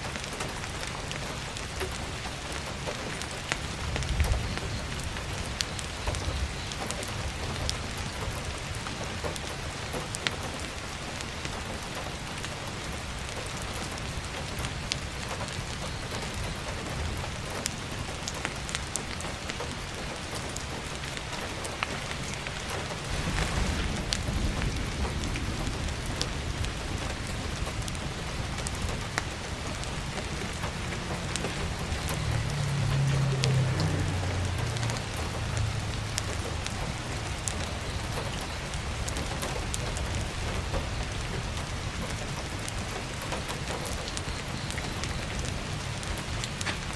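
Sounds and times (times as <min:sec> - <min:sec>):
heavy rain on a roof: 0:00.0 - 0:46.9
wood fire crackling: 0:00.0 - 0:46.9
low rumble: 0:23.0 - 0:37.9.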